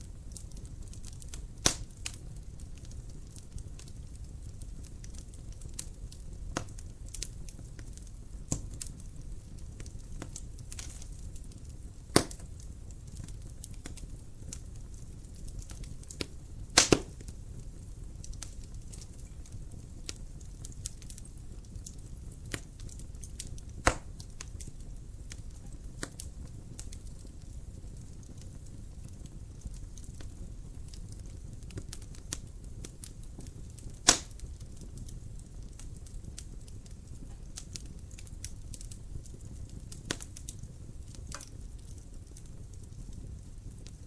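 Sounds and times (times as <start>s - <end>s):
low rumble of flames: 0.0s - 44.0s
wood fire crackling: 0.0s - 44.0s
sharp pops of fire: 0.3s - 44.0s.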